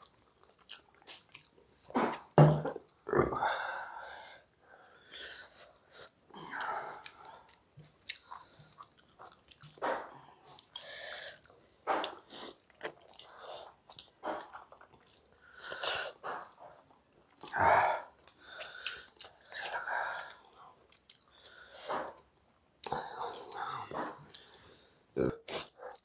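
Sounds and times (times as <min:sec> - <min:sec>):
wet chewing and smacking: 0:00.0 - 0:03.0, 0:06.5 - 0:17.6, 0:18.2 - 0:24.6.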